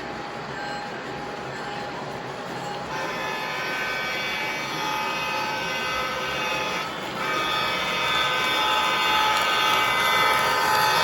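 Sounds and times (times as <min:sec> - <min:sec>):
toy train running on track: 0:00.0 - 0:11.0
electronic train horn blasts: 0:02.9 - 0:11.0.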